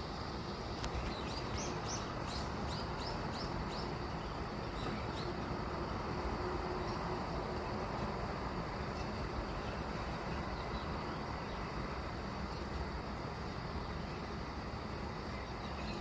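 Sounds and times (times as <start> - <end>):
distant traffic rumble: 0.0 - 16.0.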